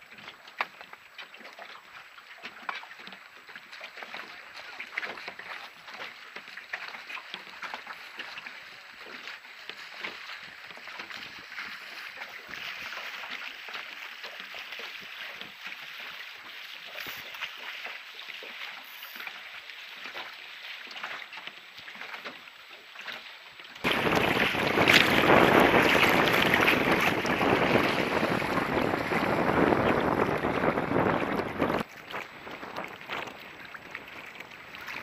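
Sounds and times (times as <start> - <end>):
water rushing along hull: 0.0 - 35.0
wind buffeting microphone: 23.8 - 34.1.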